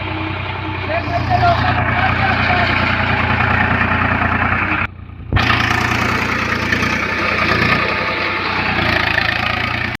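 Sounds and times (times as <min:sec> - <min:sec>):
tractor engine rumbling: 0:00.0 - 0:10.0.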